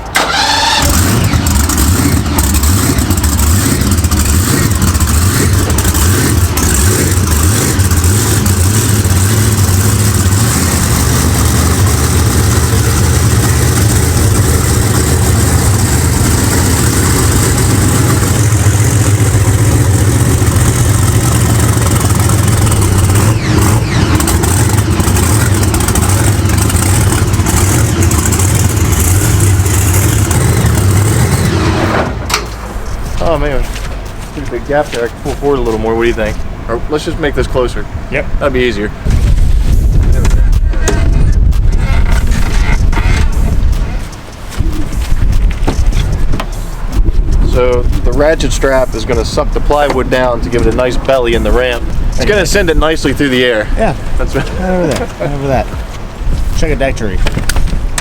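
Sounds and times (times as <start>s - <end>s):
monster truck engine starting: 0.0s - 33.4s.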